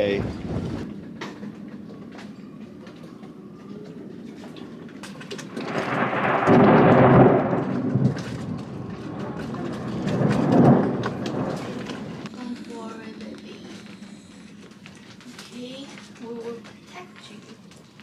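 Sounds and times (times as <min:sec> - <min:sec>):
thunder rumbling: 0:00.0 - 0:02.1, 0:03.4 - 0:13.2
rain: 0:05.3 - 0:13.1.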